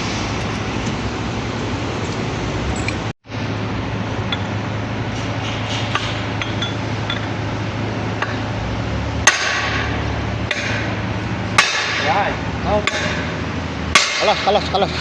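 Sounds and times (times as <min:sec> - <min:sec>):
steady low hum: 0:00.0 - 0:15.0
metal-on-metal strike ringing: 0:09.2 - 0:14.9.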